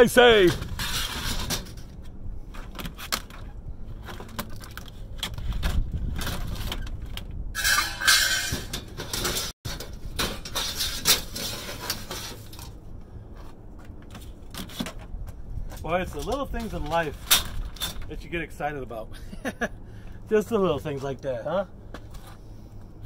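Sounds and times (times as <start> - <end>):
metal scraping and rattling: 0.1 - 13.3, 15.8 - 18.4
scrap metal clanking: 7.6 - 12.8.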